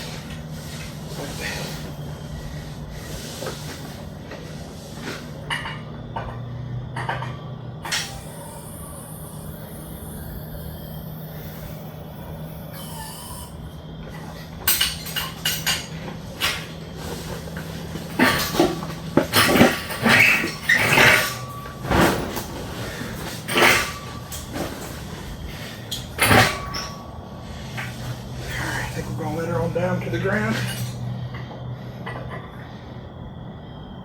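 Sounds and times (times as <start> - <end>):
steady low hum: 0.0 - 34.0
metal clanking and knocking: 3.4 - 8.3, 14.0 - 32.6.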